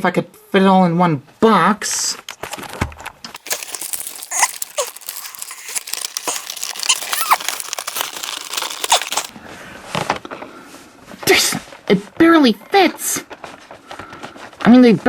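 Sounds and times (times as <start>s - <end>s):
plastic rustling and crinkling: 3.4s - 9.3s.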